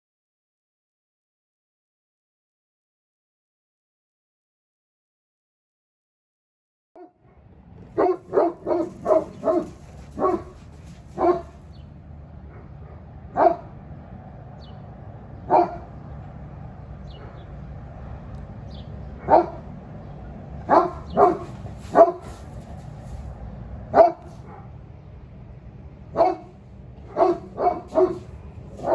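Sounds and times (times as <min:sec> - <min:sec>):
dog barking: 0:07.9 - 0:11.7, 0:12.5 - 0:13.8, 0:15.5 - 0:15.9, 0:17.1 - 0:17.5, 0:19.2 - 0:19.7, 0:20.7 - 0:23.2, 0:23.9 - 0:24.7, 0:26.1 - 0:28.9.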